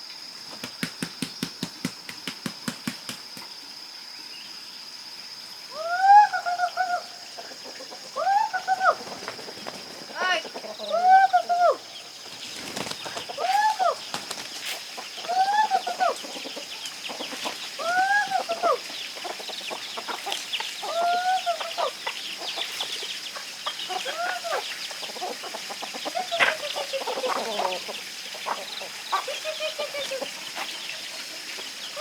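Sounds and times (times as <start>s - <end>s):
chicken calling: 5.7s - 32.0s
chicks cheeping: 7.3s - 32.0s.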